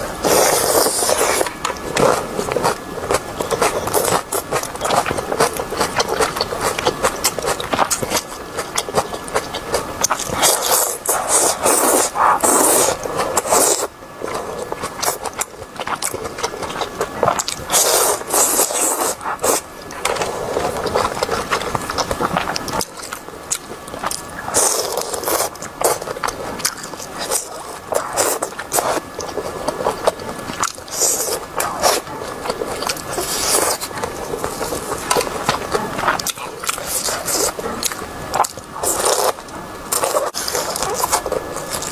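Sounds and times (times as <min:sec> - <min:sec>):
wet chewing and mouth smacking: 0:00.2 - 0:41.9.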